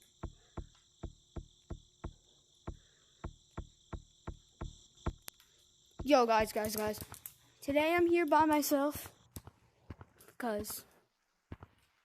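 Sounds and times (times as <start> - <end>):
soft thuds: 0.0 - 5.3
crickets chirring: 0.0 - 12.0.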